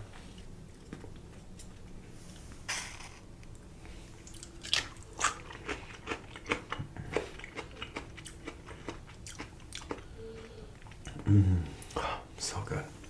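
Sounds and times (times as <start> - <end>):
chewing crunches: 4.2 - 11.2.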